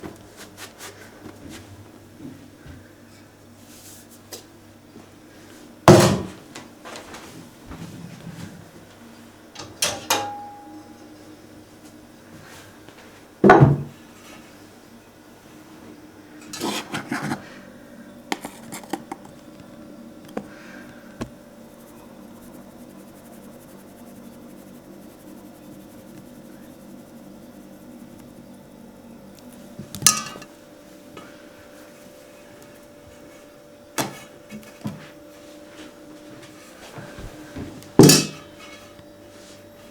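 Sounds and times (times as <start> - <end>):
utensils clattering: 9.6 - 10.5, 16.4 - 17.4, 30.0 - 30.5, 38.0 - 39.0
pots and dishes clunking: 9.6 - 10.8, 30.0 - 30.5, 38.0 - 39.0
steady low hum: 14.0 - 39.9.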